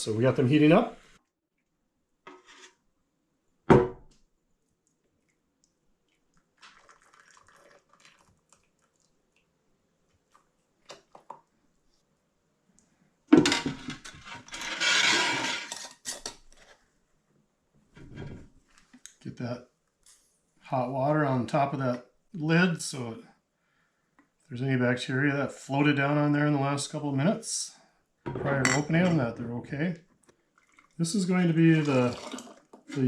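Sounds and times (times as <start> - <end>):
rushing pouring noise: 31.1 - 33.0
pots clattering: 31.7 - 33.0.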